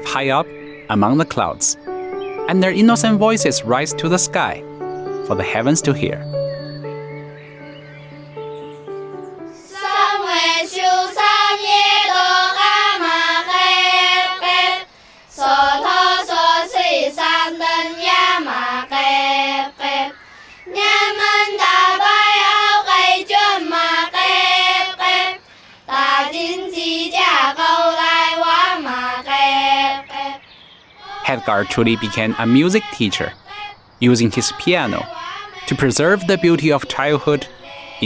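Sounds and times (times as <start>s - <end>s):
children's choir singing in harmony: 9.5s - 30.4s, 31.0s - 38.0s.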